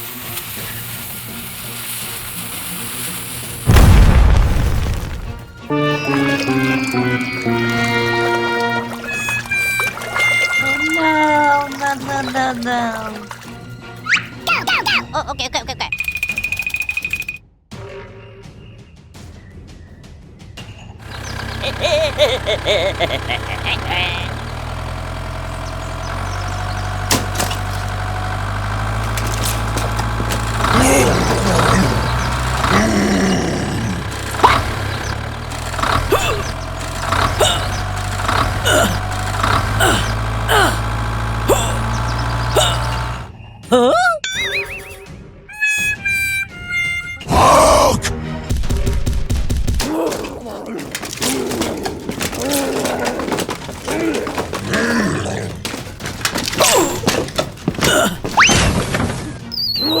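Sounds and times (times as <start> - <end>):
small engine idling: 0.0 - 14.0, 21.0 - 43.4, 50.8 - 58.5
sharp falling chirps: 3.7 - 11.1
squeaky voice-like sounds: 9.0 - 13.3, 14.0 - 16.1, 43.6 - 48.0, 59.4 - 60.0
knocks and thuds: 24.2 - 32.8, 48.5 - 59.4.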